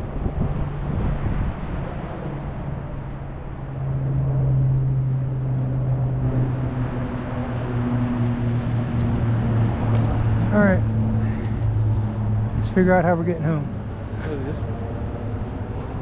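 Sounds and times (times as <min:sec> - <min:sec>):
propeller airplane droning: 0:00.0 - 0:16.0.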